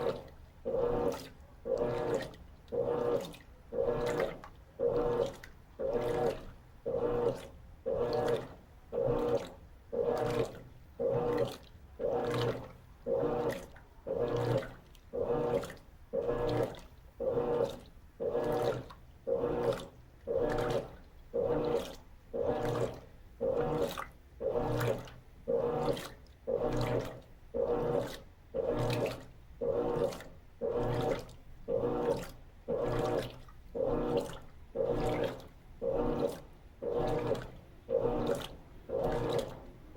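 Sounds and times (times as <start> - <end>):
washing machine sloshing water: 0.0 - 39.9.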